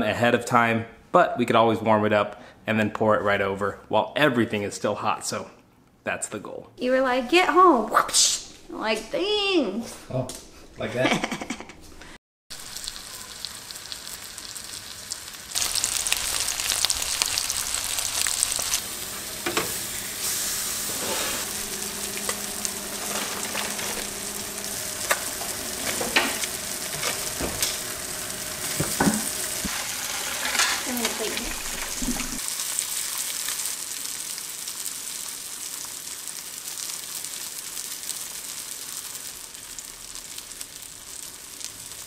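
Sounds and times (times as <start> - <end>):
fish sizzling in a skillet: 12.5 - 42.0.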